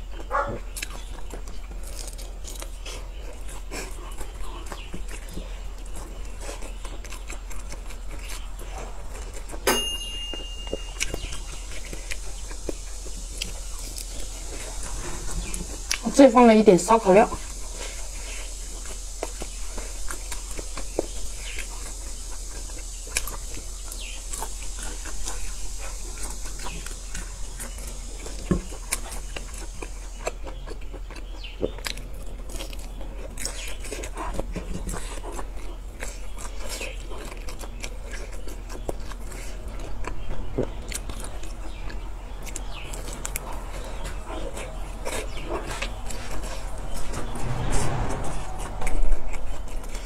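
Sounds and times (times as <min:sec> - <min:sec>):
person chewing sausage: 0:00.0 - 0:09.6, 0:10.6 - 0:16.1, 0:17.4 - 0:47.0
low steady hum: 0:46.5 - 0:50.0.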